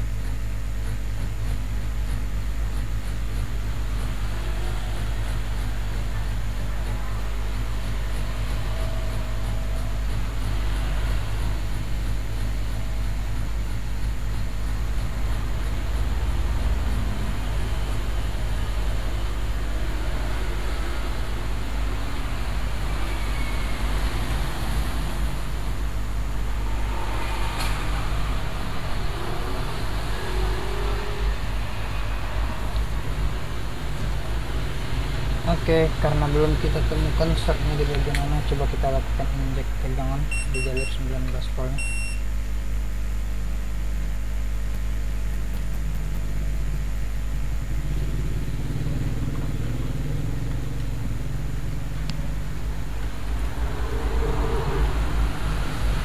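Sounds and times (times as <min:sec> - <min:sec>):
low mechanical drone: 0:00.0 - 0:56.0
low background rumble: 0:24.8 - 0:56.0.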